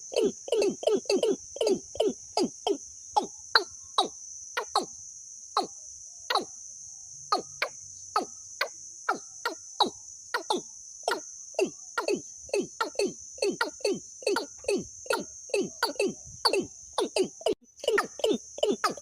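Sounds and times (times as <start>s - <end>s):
bird short calls: 9.1s - 19.0s.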